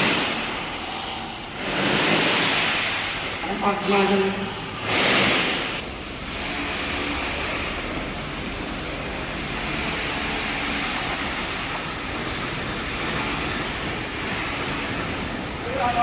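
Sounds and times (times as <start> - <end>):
steady rushing background noise: 0.0 - 16.0.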